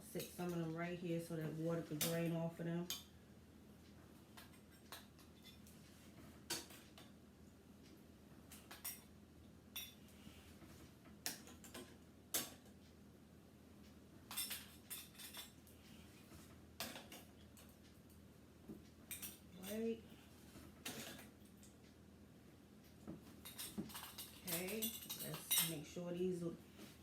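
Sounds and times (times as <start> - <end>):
metal lids clinking on glass jars: 23.5 - 25.8.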